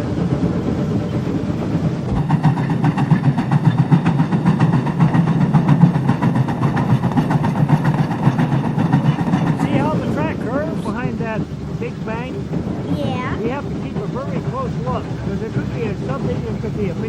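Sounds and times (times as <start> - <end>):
steam locomotive running: 0.0 - 17.0.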